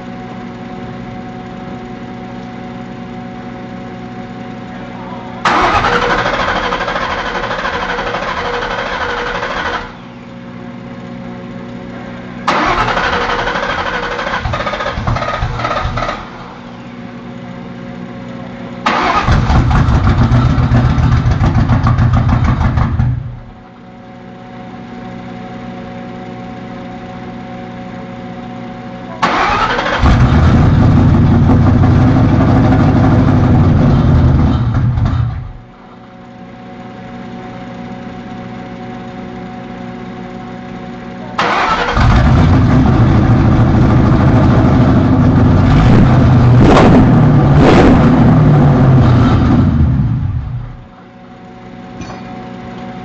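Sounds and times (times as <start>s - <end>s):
steady hum: 0.0s - 53.0s
car engine starting and stalling: 5.4s - 10.1s, 12.5s - 16.8s, 18.8s - 23.5s, 29.2s - 35.7s, 41.4s - 50.9s.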